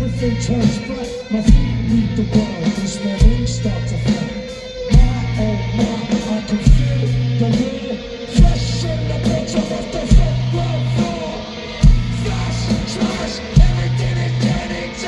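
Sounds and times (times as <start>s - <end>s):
guitar: 0.0s - 15.0s
live rock band playing: 0.0s - 15.0s
heavy drum hits: 10.1s - 11.2s, 11.8s - 14.6s.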